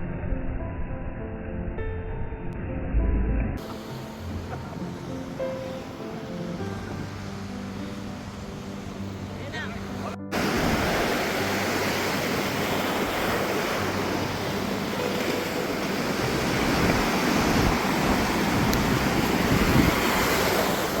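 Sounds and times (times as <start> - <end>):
waves breaking on shore: 3.6 - 21.0
wind buffeting microphone: 10.3 - 21.0.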